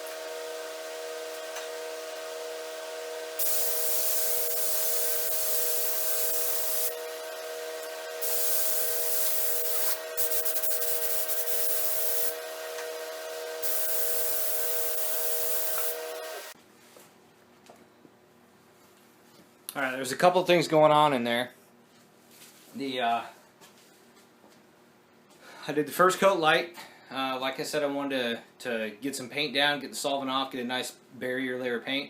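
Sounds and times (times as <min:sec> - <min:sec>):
steady hum: 0:00.0 - 0:16.6
paint spray gun hissing: 0:01.1 - 0:16.6.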